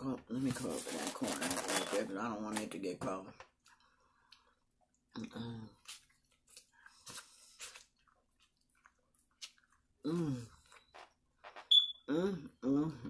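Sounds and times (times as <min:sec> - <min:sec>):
person humming: 0:10.1 - 0:10.5.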